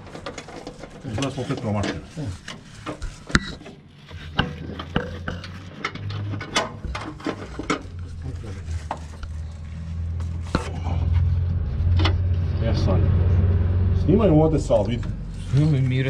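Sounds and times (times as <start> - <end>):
low steady hum: 4.4 - 16.0.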